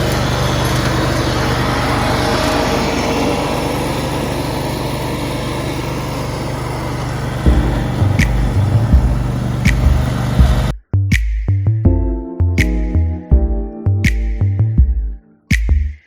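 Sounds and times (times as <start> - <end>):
tractor engine running: 0.0 - 10.7
electronic music with beat: 7.4 - 16.0.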